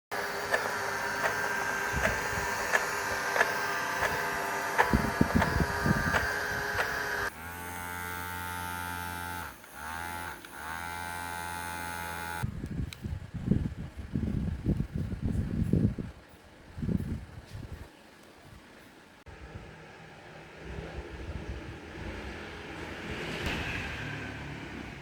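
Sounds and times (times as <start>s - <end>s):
small electric motors humming: 0.1s - 12.5s
regular clicking: 0.4s - 7.3s.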